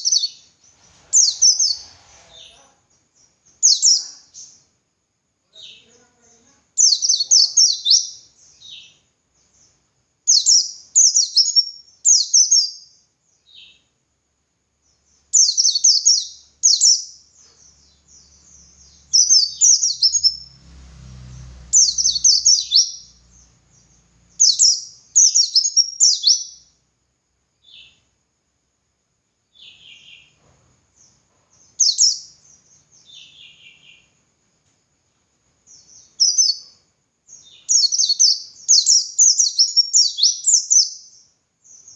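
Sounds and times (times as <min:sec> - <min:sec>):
bird twittering: 0:01.1 - 0:02.6, 0:15.3 - 0:20.5, 0:21.7 - 0:26.7, 0:37.4 - 0:41.1
faint low rumble: 0:17.6 - 0:25.2.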